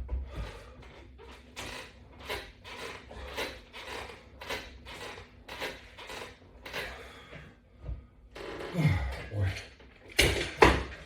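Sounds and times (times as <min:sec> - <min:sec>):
person breathing hard: 0:06.8 - 0:08.2.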